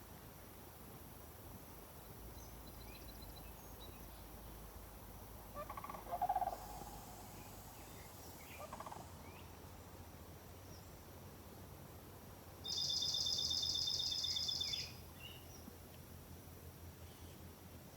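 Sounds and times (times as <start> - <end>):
bird rattling call: 5.6 - 7.5
faint high bird chirps: 12.7 - 15.5.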